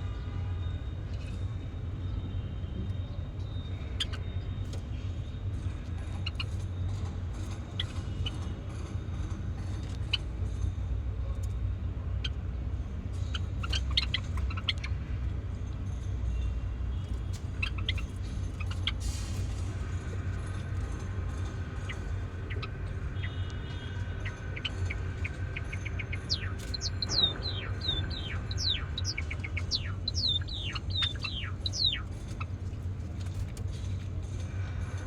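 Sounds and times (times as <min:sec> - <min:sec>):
sparrows chirping: 0:00.0 - 0:08.7, 0:13.2 - 0:14.9, 0:16.3 - 0:34.8
steady low rumble: 0:17.1 - 0:35.0.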